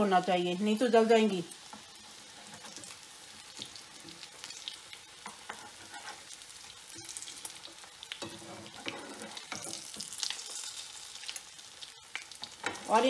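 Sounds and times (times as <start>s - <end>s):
patties sizzling in oil: 0.0s - 13.0s
metal spatula scraping and clicking: 5.2s - 7.2s, 8.2s - 10.0s.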